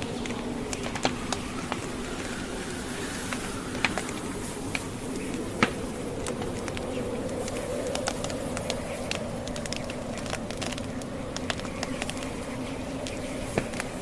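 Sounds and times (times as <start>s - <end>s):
low fire rumble: 0.0s - 14.0s
wood fire crackling and popping: 0.0s - 14.0s.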